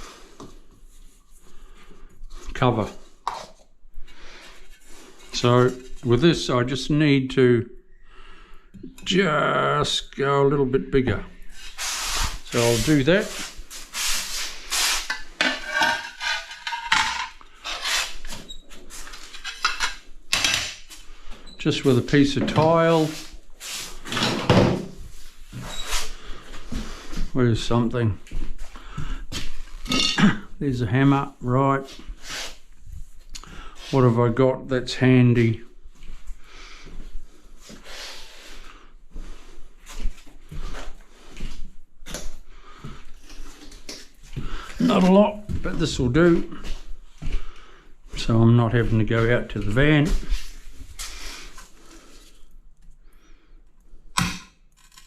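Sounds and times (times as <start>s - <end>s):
tile scraping on tile edge: 11.6s - 18.4s
tools clattering and scraping: 14.9s - 21.0s, 24.0s - 25.0s, 29.8s - 30.4s.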